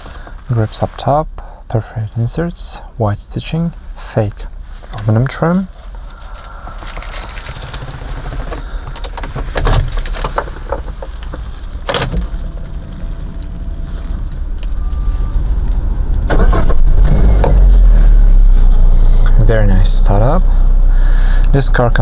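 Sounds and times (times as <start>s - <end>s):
engine cranking and starting: 6.1s - 13.8s, 14.6s - 19.3s.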